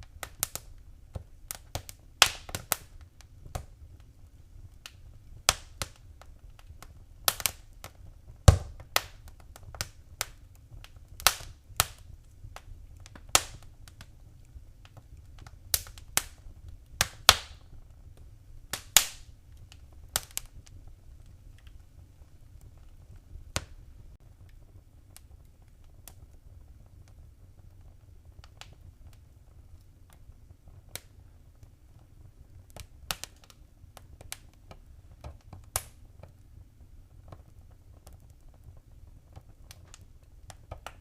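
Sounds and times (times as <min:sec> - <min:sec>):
wood fire popping and snapping: 0:00.0 - 0:41.0.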